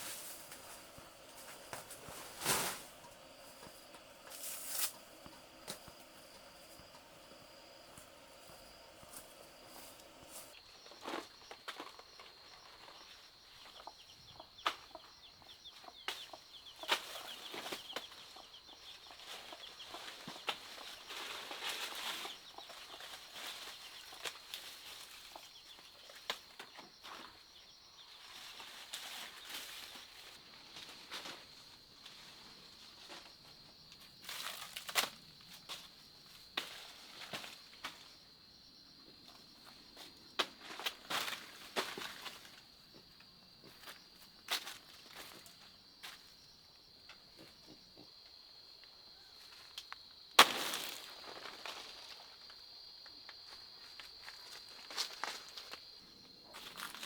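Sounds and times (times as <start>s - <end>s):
faint rustles: 0.0s - 10.6s
high insect drone: 0.0s - 26.2s.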